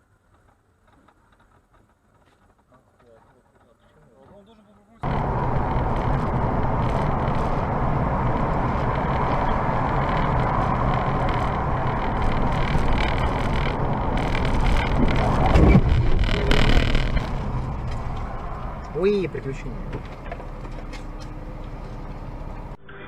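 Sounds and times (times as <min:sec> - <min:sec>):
road noise: 0:00.0 - 0:22.9
car engine: 0:05.0 - 0:22.8.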